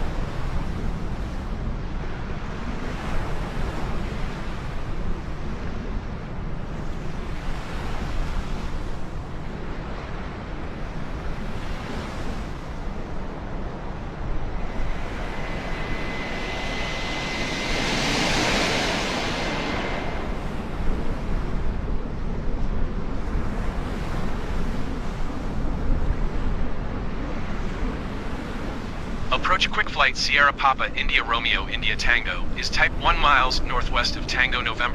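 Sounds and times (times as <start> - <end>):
steady wind-like rumble: 0.0 - 34.9
aircraft passing overhead: 10.2 - 25.4, 27.2 - 34.9.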